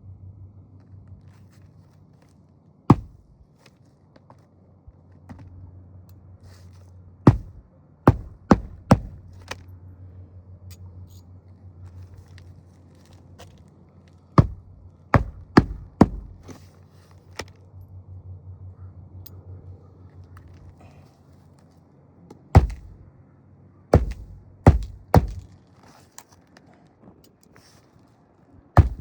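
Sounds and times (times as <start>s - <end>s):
hammer striking nails: 2.9s - 3.2s, 7.3s - 9.3s, 14.4s - 16.6s, 22.6s - 23.0s, 24.0s - 25.5s, 28.8s - 29.0s.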